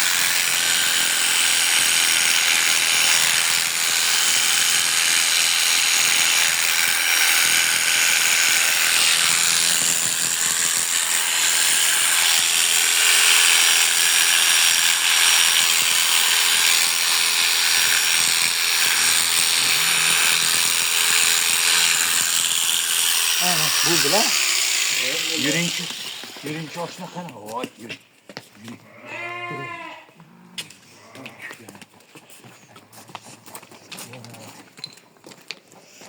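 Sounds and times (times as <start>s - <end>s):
electric clippers cutting wool: 0.0s - 27.4s.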